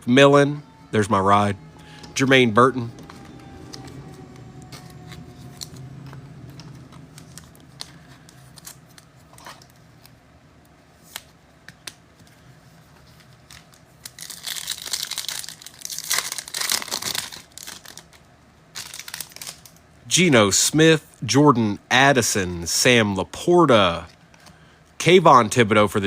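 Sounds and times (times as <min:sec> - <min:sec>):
wrapper crinkling and tearing: 0:13.2 - 0:19.8.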